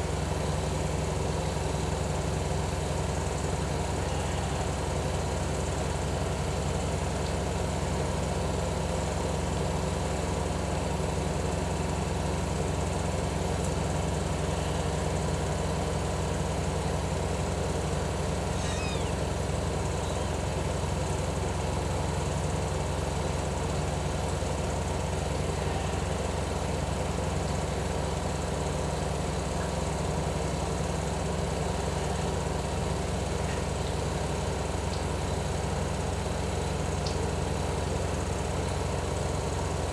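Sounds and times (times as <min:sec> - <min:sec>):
faint high chirp: 0:18.5 - 0:19.2, 0:20.0 - 0:20.4.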